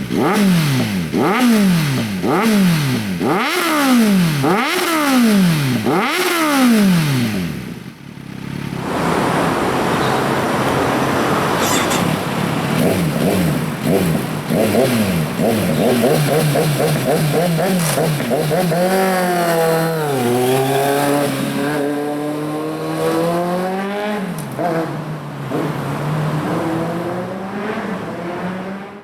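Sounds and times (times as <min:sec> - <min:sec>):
motorcycle engine revving: 0:00.0 - 0:29.0
steady rushing noise: 0:08.7 - 0:14.6.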